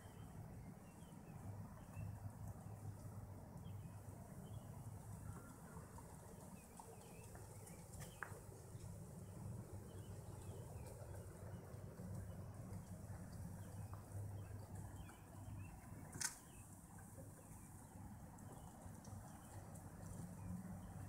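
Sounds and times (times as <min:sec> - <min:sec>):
sharp click: 0:16.1 - 0:16.5.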